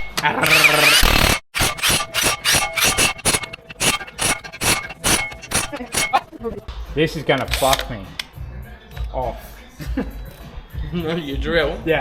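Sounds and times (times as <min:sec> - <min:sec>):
power tool running: 0:00.4 - 0:06.6
scraping strokes: 0:01.6 - 0:06.6.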